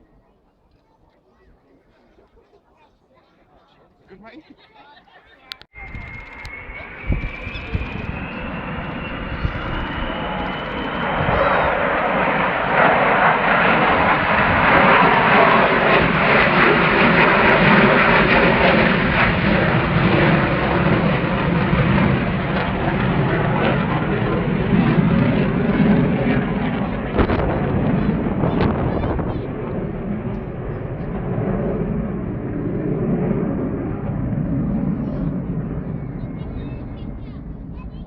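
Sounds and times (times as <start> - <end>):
thin rising whine: 5.7 - 12.9
loud jet engine noise: 5.7 - 38.0.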